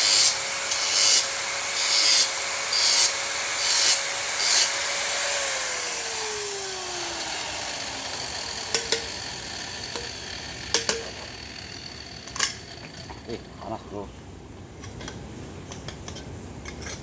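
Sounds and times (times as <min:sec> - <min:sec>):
power tool grinding metal: 0:00.0 - 0:13.5.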